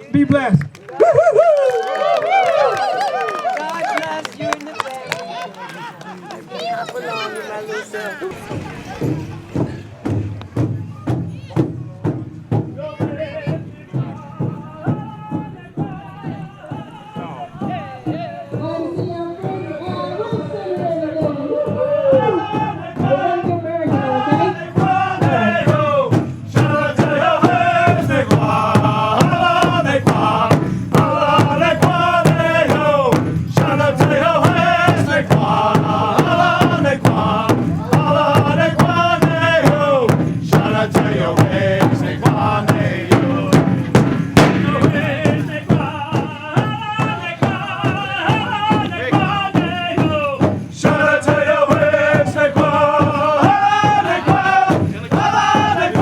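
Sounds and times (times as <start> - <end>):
large drum beat: 8.3 - 56.0
men chanting together: 12.6 - 56.0.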